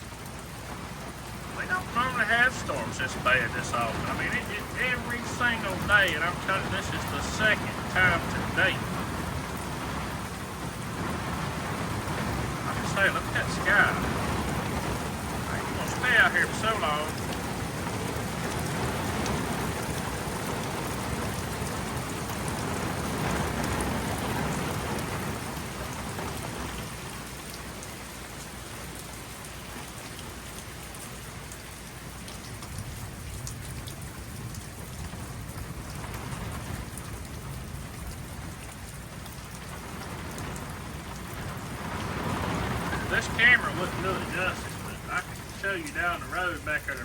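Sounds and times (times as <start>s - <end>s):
steady rain falling: 0.0s - 47.0s
low thunder rumble: 0.5s - 27.2s, 32.8s - 47.0s.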